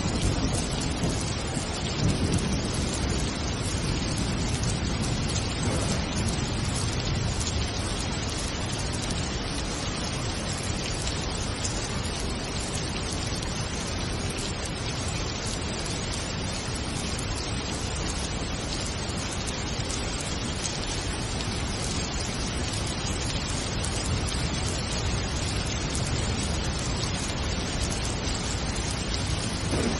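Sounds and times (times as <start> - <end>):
heavy rain hissing: 0.0 - 29.9.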